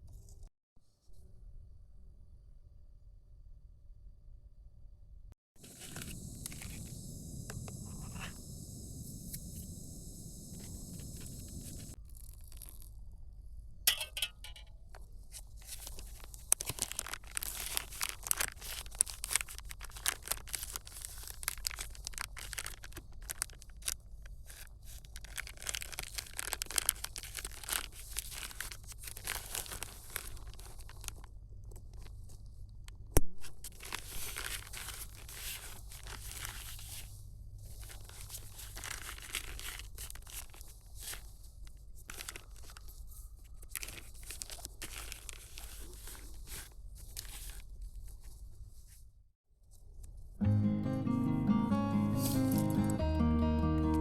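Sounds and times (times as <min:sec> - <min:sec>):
material crinkling and rustling: 0:15.1 - 0:50.2.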